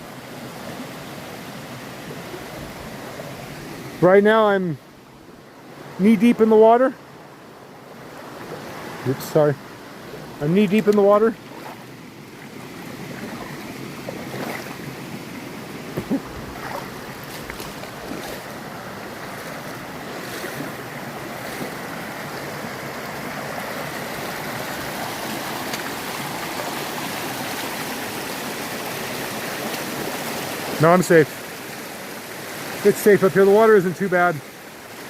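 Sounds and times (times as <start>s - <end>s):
mountain stream rushing: 0.0s - 35.0s
water splashes: 8.0s - 35.0s.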